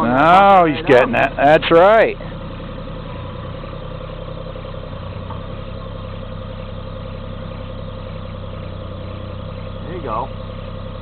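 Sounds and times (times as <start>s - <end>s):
excavator diesel engine running: 0.0s - 11.0s
steady whine: 0.0s - 11.0s.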